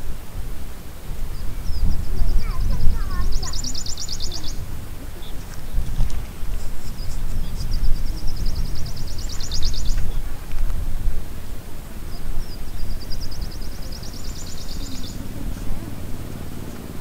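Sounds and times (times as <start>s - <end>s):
steady low rumble: 0.0s - 17.0s
small bird high trills: 1.3s - 4.6s, 12.4s - 15.7s.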